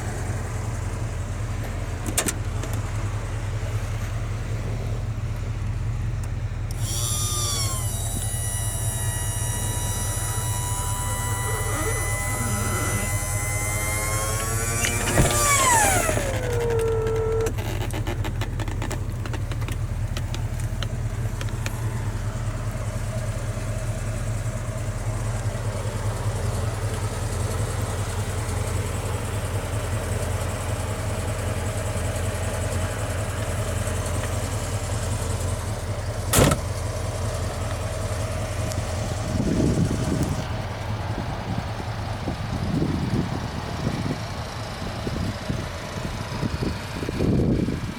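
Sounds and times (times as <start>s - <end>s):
car engine idling: 0.0s - 47.9s
electric motor whine: 6.7s - 18.1s.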